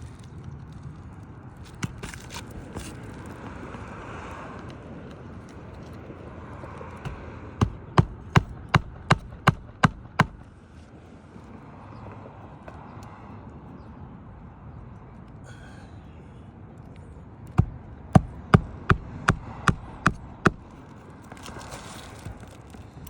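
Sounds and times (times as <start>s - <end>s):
hammer striking roofing nails: 7.0s - 10.6s, 17.6s - 20.8s.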